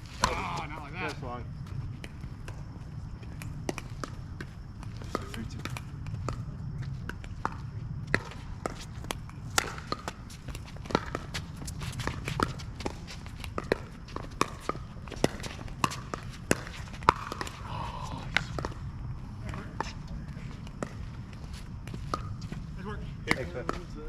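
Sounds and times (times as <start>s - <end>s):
players' footsteps: 0.0s - 24.0s
ball bouncing on court: 0.1s - 0.8s, 3.3s - 17.6s, 18.3s - 18.8s, 20.7s - 22.6s, 23.3s - 23.8s.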